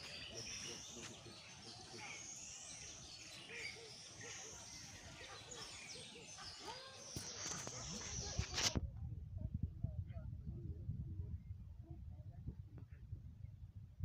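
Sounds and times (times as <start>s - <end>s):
birds chirping and calling: 0.0s - 8.8s.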